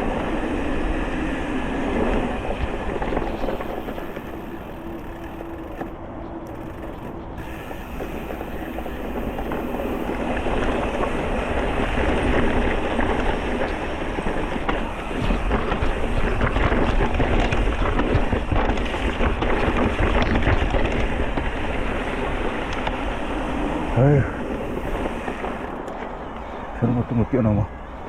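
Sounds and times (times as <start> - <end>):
wind buffeting the microphone: 0.0 - 28.0
bike rattling over bumps: 1.9 - 26.6
tyres rolling on rock and gravel: 2.0 - 27.7.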